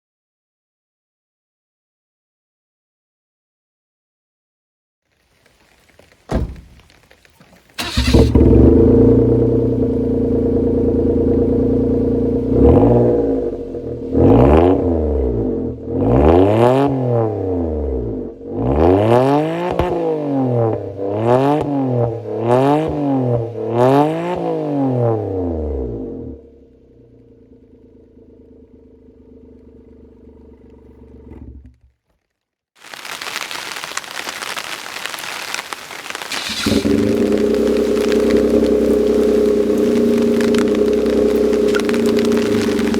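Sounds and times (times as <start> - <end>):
car engine starting and idling: 5.6 - 31.8, 36.3 - 42.9
short knock: 6.3 - 7.0
car engine revving: 7.6 - 31.8, 36.1 - 42.9.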